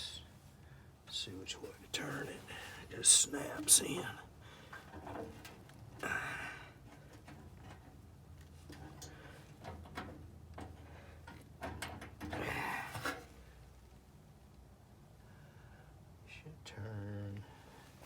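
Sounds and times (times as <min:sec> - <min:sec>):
hand clicking and scraping parts: 0:01.2 - 0:13.4.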